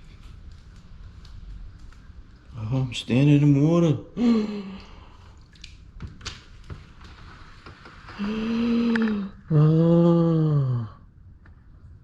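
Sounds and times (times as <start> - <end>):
man groaning: 9.5 - 11.0.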